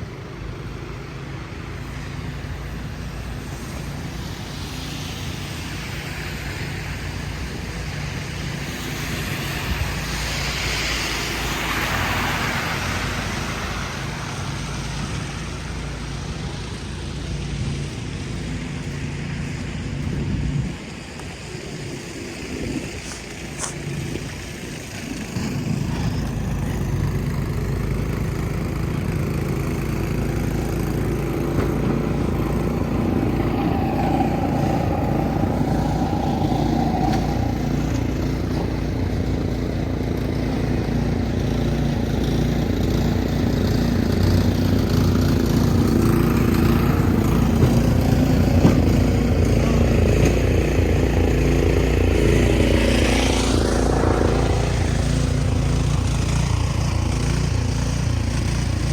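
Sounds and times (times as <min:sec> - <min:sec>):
engine humming: 0:00.0 - 0:58.9
rising whoosh: 0:30.1 - 0:40.2, 0:45.5 - 0:57.5.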